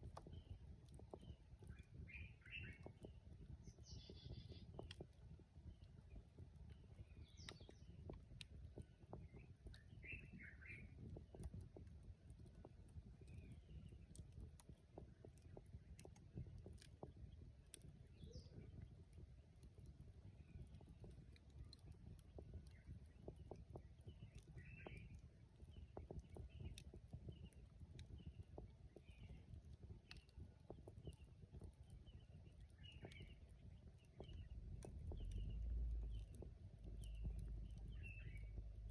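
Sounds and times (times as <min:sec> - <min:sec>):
campfire crackling and popping: 0:00.0 - 0:38.9
bird chirping: 0:02.0 - 0:02.9, 0:10.0 - 0:10.9, 0:37.1 - 0:38.9
soft low rumble: 0:14.6 - 0:38.9
low rumble: 0:34.5 - 0:38.9.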